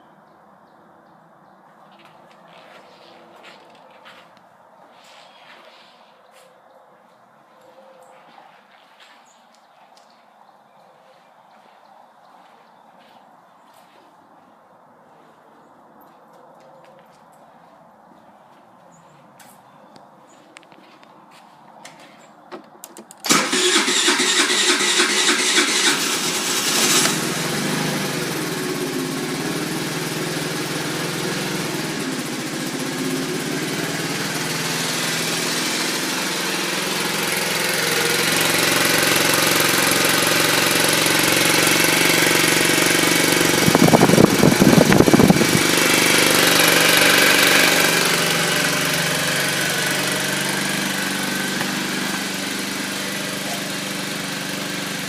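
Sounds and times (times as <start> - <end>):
moped engine starting and idling: 22.6 - 55.0.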